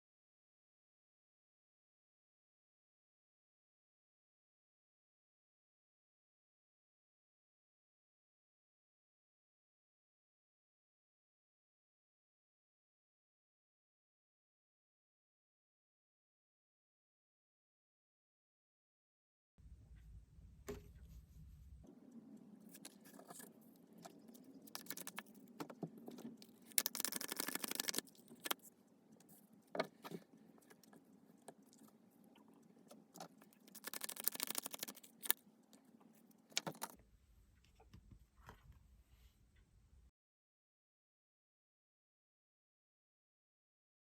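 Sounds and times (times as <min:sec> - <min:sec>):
cards clicking and scraping: 0:22.7 - 0:28.7, 0:33.2 - 0:35.4
cards shuffling: 0:24.7 - 0:25.3, 0:26.7 - 0:28.6, 0:33.7 - 0:35.4.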